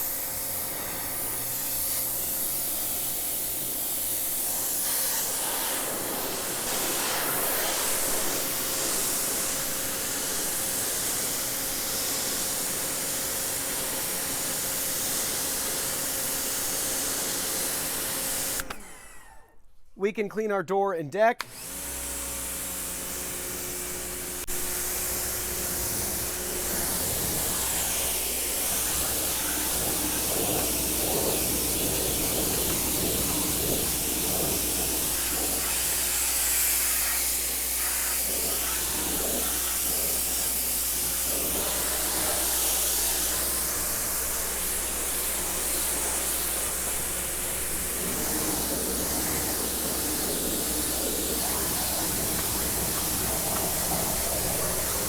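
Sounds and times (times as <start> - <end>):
high-pressure water jet hissing: 0.0 - 18.7, 21.5 - 55.0
pump motor humming: 21.4 - 55.0.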